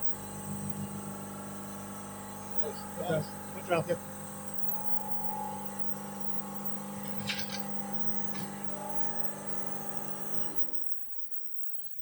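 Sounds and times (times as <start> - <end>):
steady machine hum: 0.0 - 10.8
click: 7.1 - 8.7.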